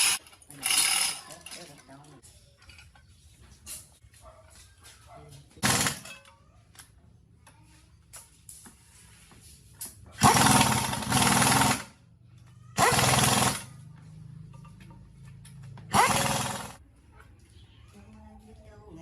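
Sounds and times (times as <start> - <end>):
power tool whining and rattling: 10.2 - 12.0, 12.8 - 13.8, 15.8 - 16.8.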